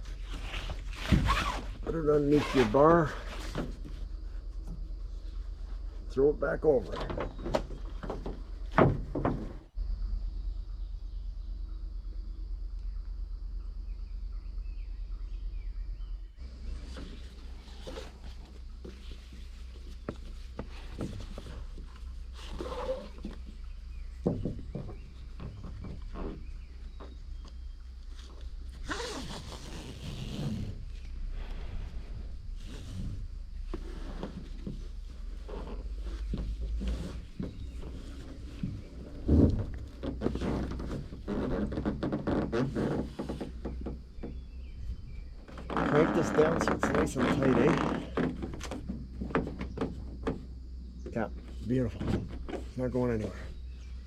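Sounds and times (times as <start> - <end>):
strap webbing and buckle scraping: 0.0 - 6.1, 16.7 - 50.4
strap thump: 0.5 - 1.8, 32.8 - 44.5.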